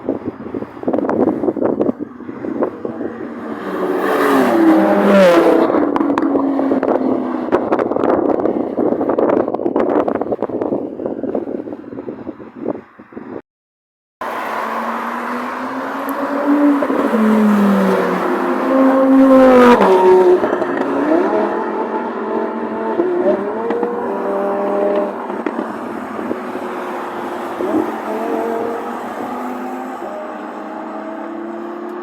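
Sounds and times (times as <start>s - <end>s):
sports car engines revving: 0.8s - 8.9s, 14.2s - 32.0s
car passing by: 14.2s - 22.2s.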